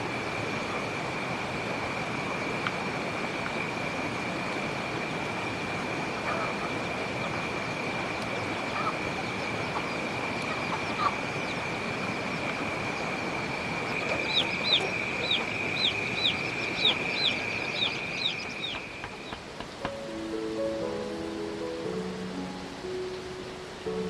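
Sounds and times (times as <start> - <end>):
high-pitched whine: 0.0 - 19.2
constant hiss: 0.0 - 24.0
bird chirping: 6.1 - 24.0.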